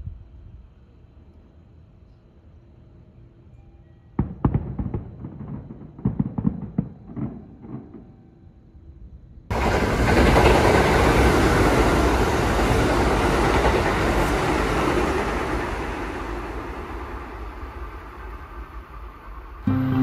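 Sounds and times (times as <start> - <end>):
train rumbling past: 9.5 - 20.0.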